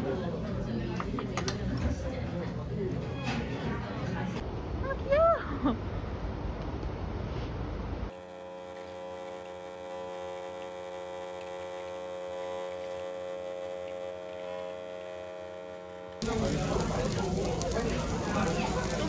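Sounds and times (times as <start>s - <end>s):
electrical hum: 4.4s - 8.1s, 16.2s - 19.0s.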